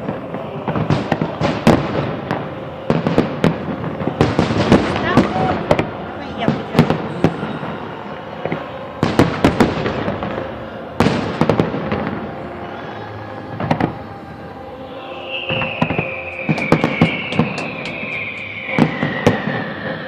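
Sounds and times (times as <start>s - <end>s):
fireworks crackle: 0.0s - 20.0s
high descending whistle: 2.7s - 20.0s
firework shell bursts: 15.3s - 20.0s.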